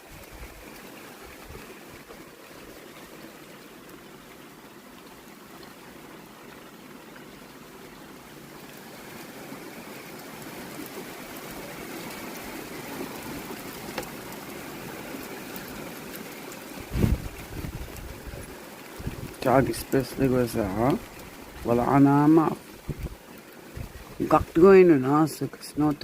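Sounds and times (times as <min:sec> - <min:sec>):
heavy rain pouring: 0:00.0 - 0:26.0
low bumps: 0:16.8 - 0:18.3.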